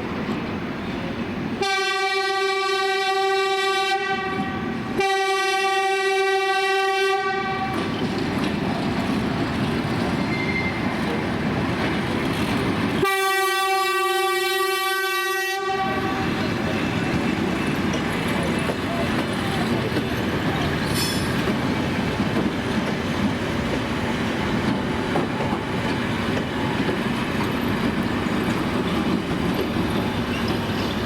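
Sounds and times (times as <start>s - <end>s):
train rumble and wheel clatter: 0.0s - 31.0s
train horn blasts: 1.6s - 7.9s, 13.0s - 16.5s.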